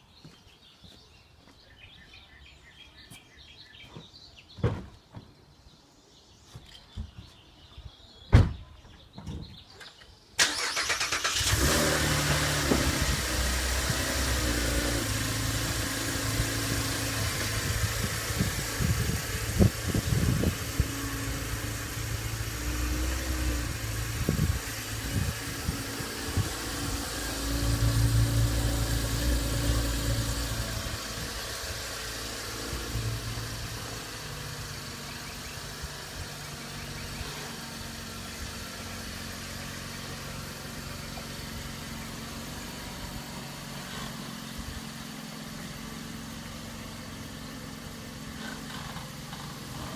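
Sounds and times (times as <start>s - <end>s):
car engine idling: 10.4s - 49.9s.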